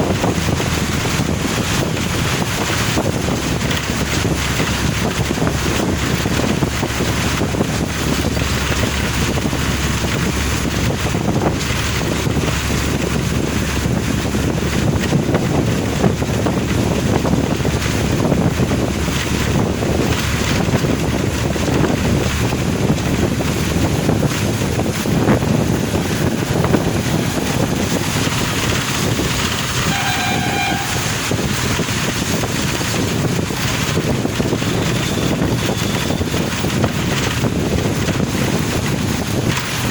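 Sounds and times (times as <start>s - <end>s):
car driving on wet road: 0.0s - 39.9s
vehicle horn: 29.8s - 31.4s.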